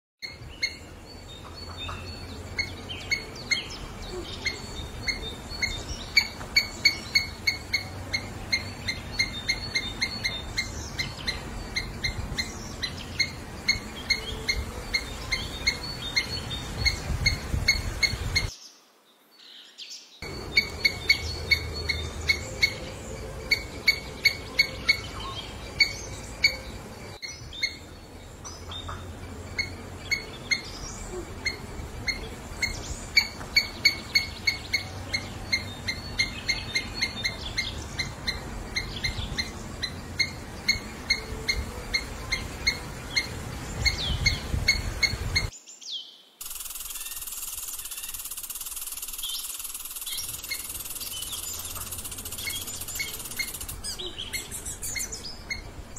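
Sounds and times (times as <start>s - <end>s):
squirrel chirping: 1.9s - 18.5s, 20.2s - 27.9s, 28.7s - 45.5s, 46.4s - 55.7s
low outdoor rumble: 20.2s - 45.5s.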